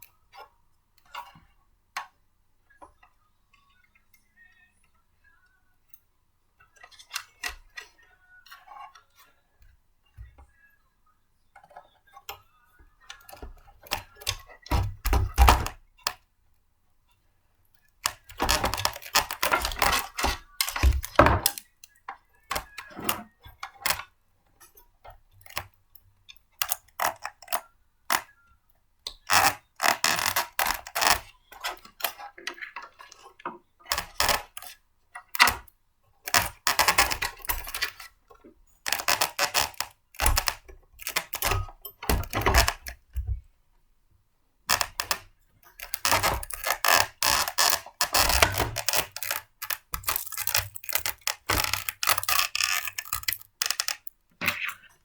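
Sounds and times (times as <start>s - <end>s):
plastic parts clicking and clattering: 11.6s - 16.3s, 17.8s - 28.3s, 29.1s - 43.5s, 44.7s - 55.0s.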